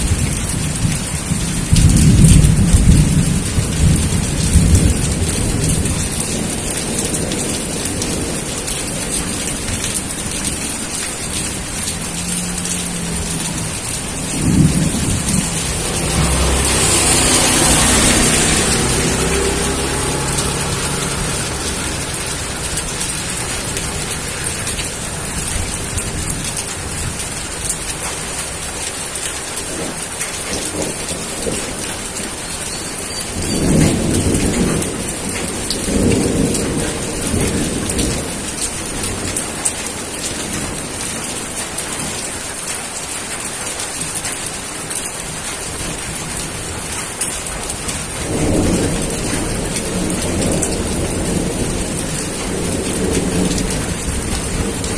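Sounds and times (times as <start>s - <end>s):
steady rain hissing: 0.0s - 54.9s
low rolls of thunder: 0.1s - 10.6s, 11.8s - 27.5s, 33.3s - 39.4s, 48.2s - 54.9s.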